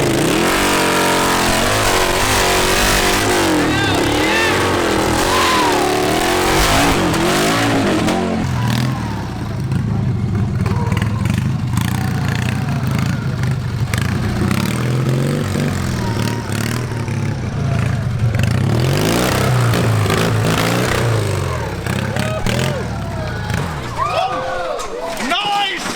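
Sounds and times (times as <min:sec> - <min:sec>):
lawn tractor engine revving: 0:00.0 - 0:24.4.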